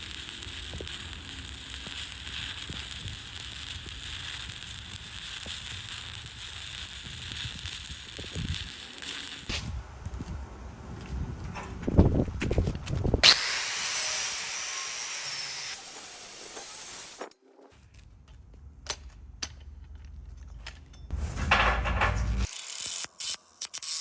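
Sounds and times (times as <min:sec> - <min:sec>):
welding arc hissing and crackling: 0:00.0 - 0:09.7, 0:13.2 - 0:17.3, 0:22.4 - 0:24.0.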